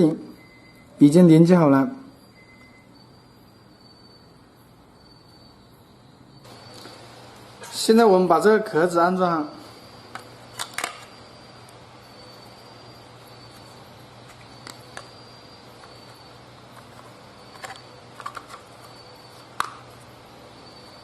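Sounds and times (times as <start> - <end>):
plastic clicks and snaps: 19.6 - 19.8.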